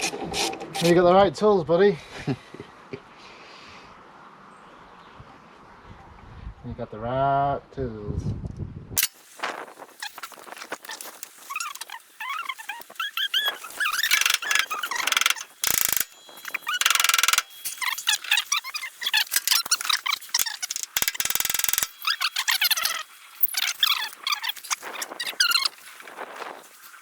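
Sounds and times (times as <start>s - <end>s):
birds chirping: 10.0s - 27.0s
socket ratchet clicking: 13.3s - 23.0s.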